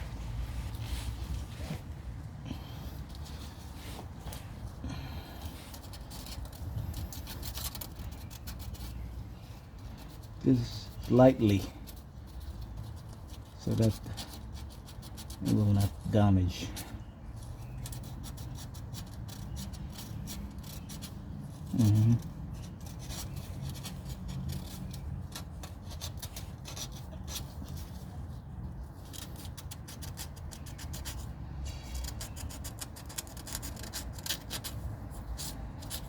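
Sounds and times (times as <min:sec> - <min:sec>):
sandpaper scratching on metal: 0:09.9 - 0:16.8, 0:17.8 - 0:28.1, 0:29.0 - 0:36.0.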